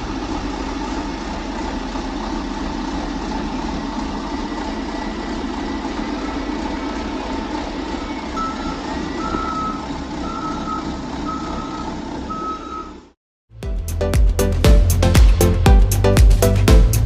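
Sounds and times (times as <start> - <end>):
truck engine running: 0.0 - 17.0
reversing alarm beeping: 6.0 - 6.7, 7.9 - 13.0.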